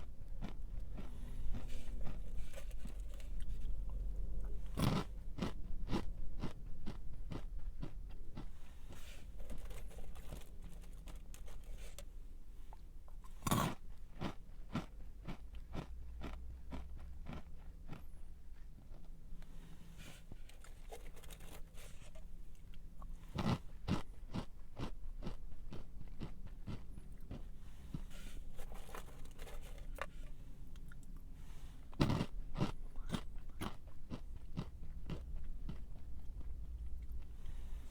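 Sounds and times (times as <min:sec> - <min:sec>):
chewing crunchy snack: 0:00.0 - 0:37.9.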